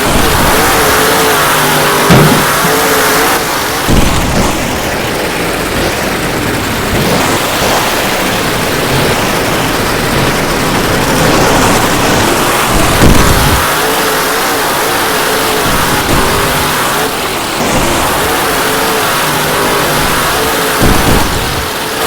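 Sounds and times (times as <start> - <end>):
truck engine revving: 0.0 - 22.0
heavy low thumps: 2.0 - 13.7.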